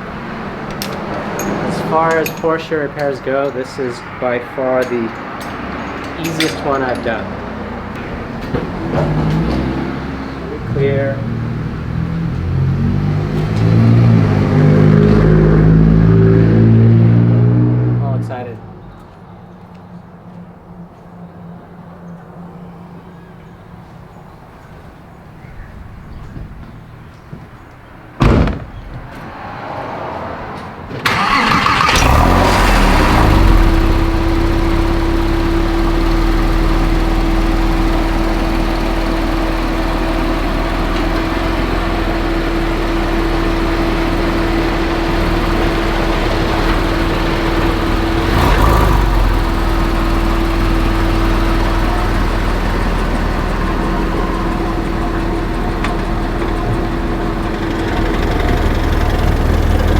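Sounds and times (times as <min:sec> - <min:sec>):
car engine starting and idling: 0:00.0 - 0:25.4, 0:28.1 - 0:59.9
sharp knock: 0:28.2 - 0:29.3.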